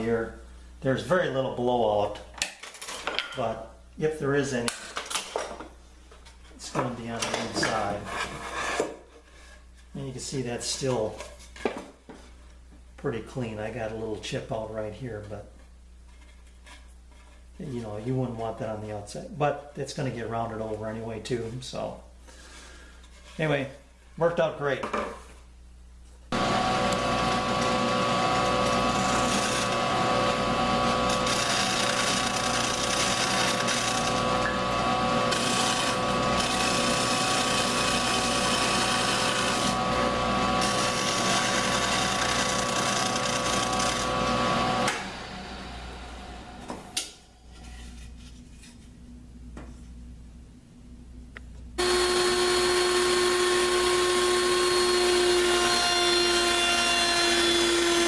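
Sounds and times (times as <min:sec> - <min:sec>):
electric power tool motor running: 0:26.3 - 0:46.6, 0:51.8 - 0:58.0.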